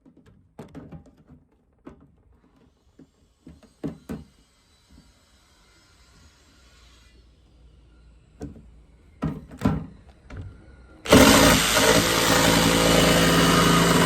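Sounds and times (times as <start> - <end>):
loud motor running: 11.1 - 14.0.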